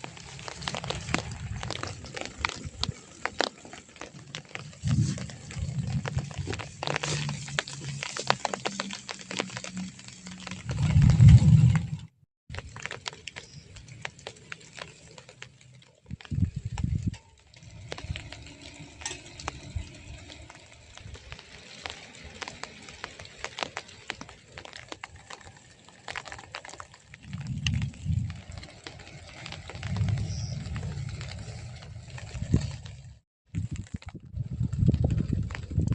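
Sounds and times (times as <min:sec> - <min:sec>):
rain drops crackling: 0:00.0 - 0:35.9.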